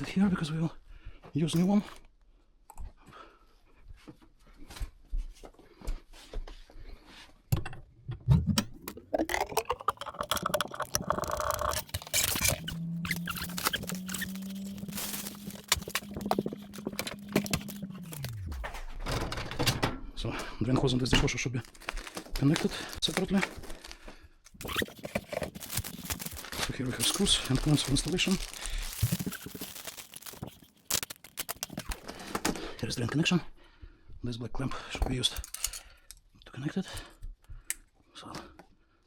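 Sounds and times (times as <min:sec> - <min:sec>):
tools clicking and knocking: 0:35.3 - 0:36.2.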